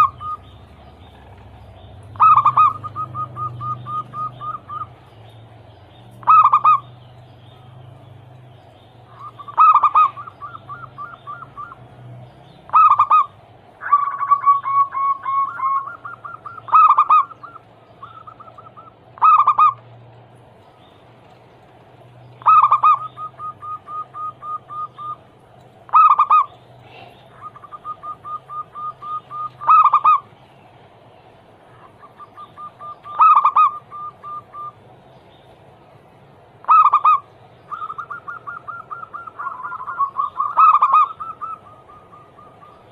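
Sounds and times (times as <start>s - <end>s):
dove cooing: 0.0s - 5.1s, 6.1s - 7.0s, 9.0s - 12.0s, 12.7s - 19.9s, 22.4s - 25.3s, 25.9s - 30.4s, 31.7s - 34.8s, 36.6s - 42.9s.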